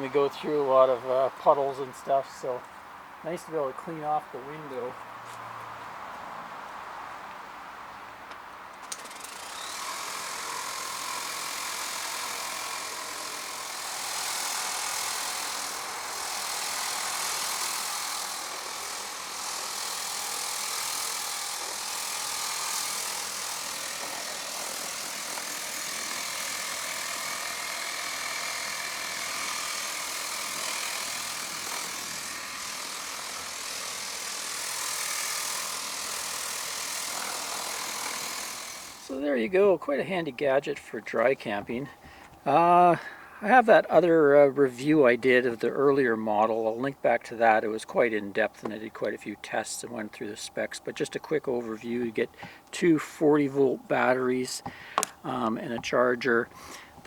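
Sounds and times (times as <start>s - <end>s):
pressure washer spraying water: 11.3s - 39.2s.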